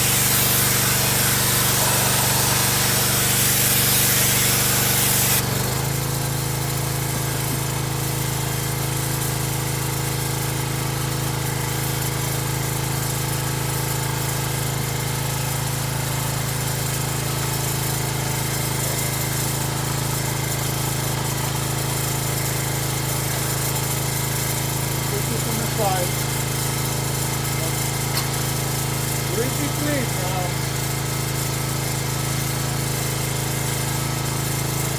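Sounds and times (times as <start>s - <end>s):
loud hiss: 0.0s - 5.4s, 27.5s - 30.6s
excavator engine idling: 24.6s - 31.2s.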